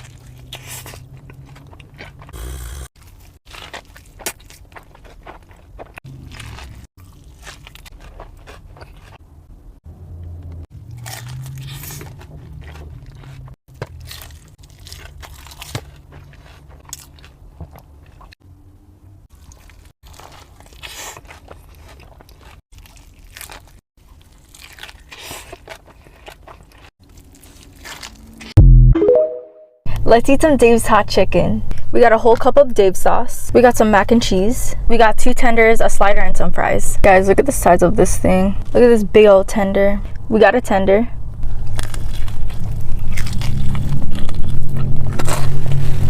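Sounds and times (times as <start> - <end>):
crunching fried chicken: 0.0 - 9.2, 10.7 - 18.4, 19.3 - 28.6, 41.4 - 46.0.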